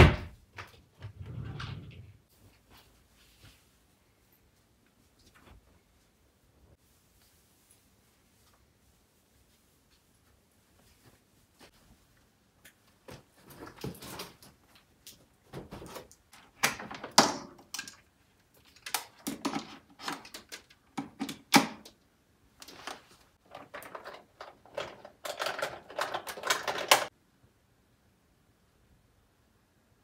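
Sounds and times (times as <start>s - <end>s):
objects clicking and knocking: 15.6s - 22.0s, 22.6s - 27.1s.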